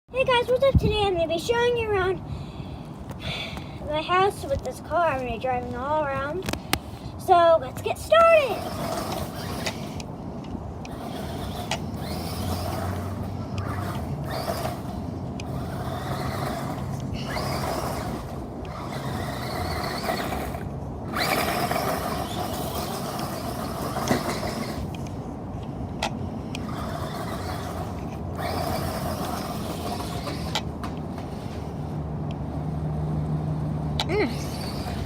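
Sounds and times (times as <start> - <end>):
toy truck electric motor whirring: 7.7 - 10.2, 10.8 - 25.3, 26.0 - 35.0
wheels rolling on floor: 8.4 - 10.1, 10.9 - 25.1, 26.6 - 32.0.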